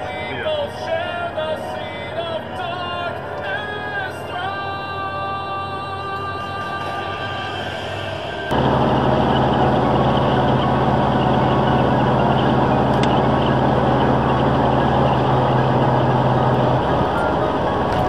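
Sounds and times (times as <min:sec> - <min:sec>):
road noise: 0:00.0 - 0:18.0
car engine humming in cabin: 0:08.5 - 0:18.0.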